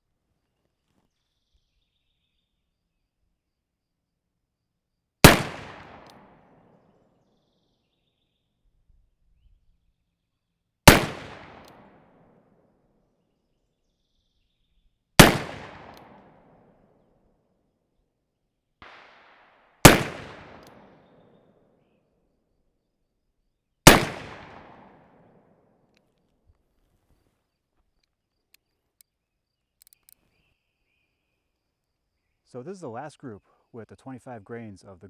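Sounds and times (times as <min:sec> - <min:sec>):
revolver gunshots: 0:05.2 - 0:06.8, 0:10.9 - 0:12.1, 0:15.2 - 0:16.6, 0:18.8 - 0:21.4, 0:23.9 - 0:25.4.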